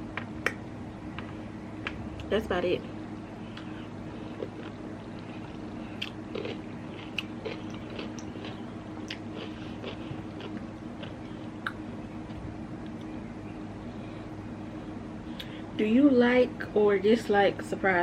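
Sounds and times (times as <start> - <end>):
close chewing and biting: 3.6 - 12.4.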